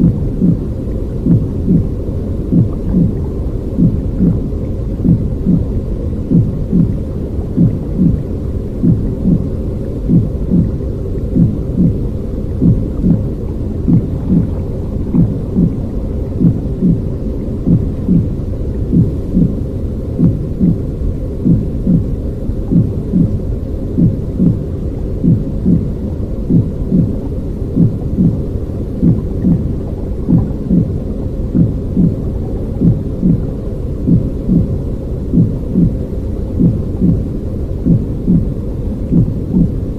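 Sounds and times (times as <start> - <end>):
deep muffled rumbling: 0.0 - 39.9
heartbeat-like pulse: 0.0 - 39.9.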